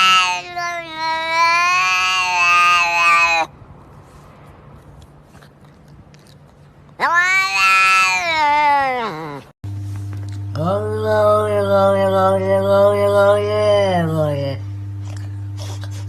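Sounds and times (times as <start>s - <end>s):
cat meowing: 0.0s - 3.5s, 7.0s - 9.5s.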